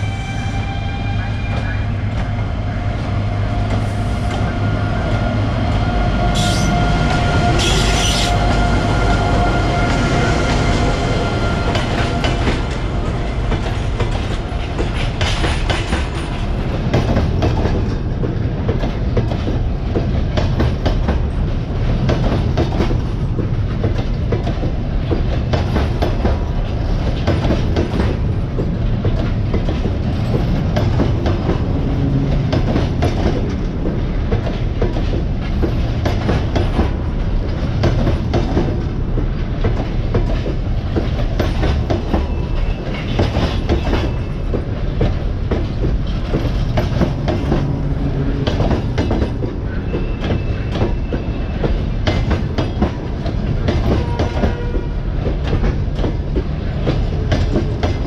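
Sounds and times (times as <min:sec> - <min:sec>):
train wheels clicking over rail joints: 0:11.7 - 0:58.0.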